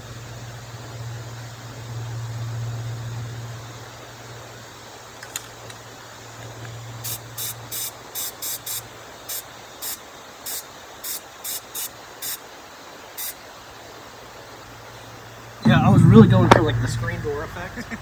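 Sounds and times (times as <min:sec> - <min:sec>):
aerosol spray hissing: 0:07.0 - 0:12.5, 0:13.1 - 0:13.4
low hum: 0:15.6 - 0:18.0.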